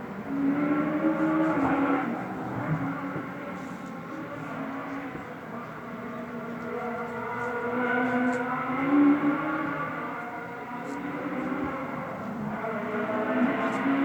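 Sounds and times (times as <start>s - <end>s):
rally car engine revving: 5.9s - 14.0s.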